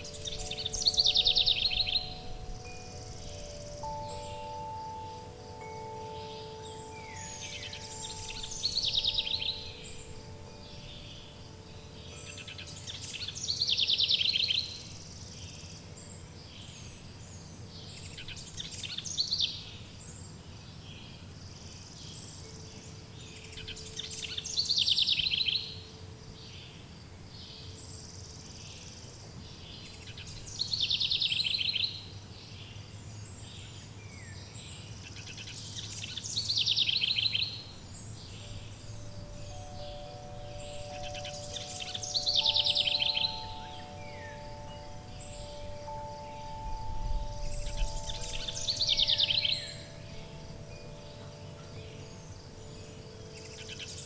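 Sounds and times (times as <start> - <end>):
songbird trilling: 0.0 - 15.8, 22.2 - 25.8, 33.4 - 54.0
faint wind chime tones: 0.0 - 26.8, 33.0 - 54.0
low outdoor background: 0.0 - 54.0.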